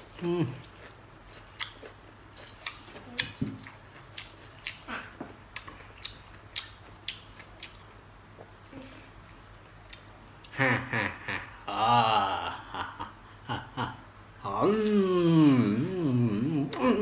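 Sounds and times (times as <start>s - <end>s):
crunchy wet chewing: 0.0s - 8.6s.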